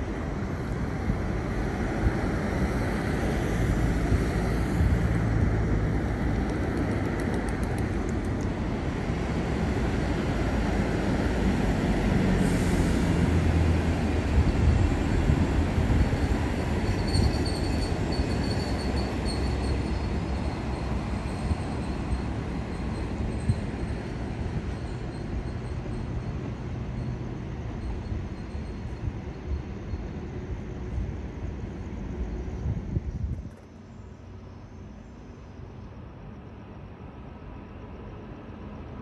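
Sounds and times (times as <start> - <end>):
train rumbling: 0.0 - 39.0
faint high wheel squeal: 16.2 - 30.2.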